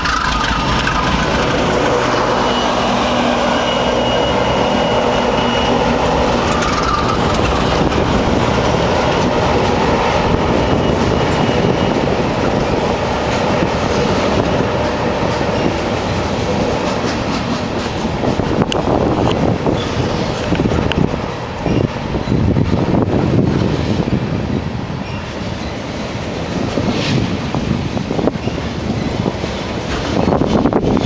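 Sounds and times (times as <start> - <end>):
locomotive engines droning: 0.0 - 31.0
train wheels clattering over rails: 0.0 - 31.0.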